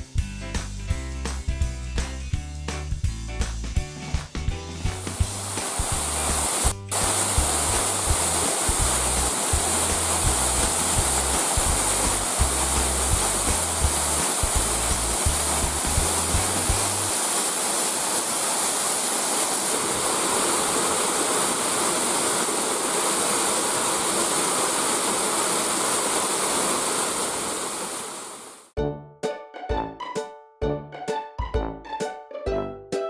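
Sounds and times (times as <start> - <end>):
low background music: 0.0 - 17.0, 28.8 - 33.0
small waterfall rushing: 5.1 - 28.7
bright plucked music: 28.8 - 33.0.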